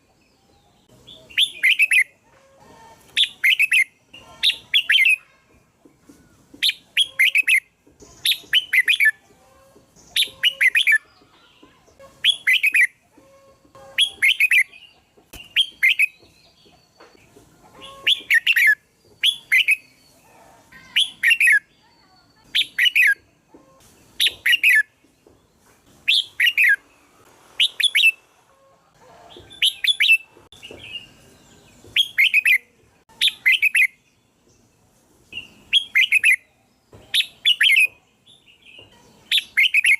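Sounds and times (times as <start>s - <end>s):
bird chirping song: 0.0s - 39.9s.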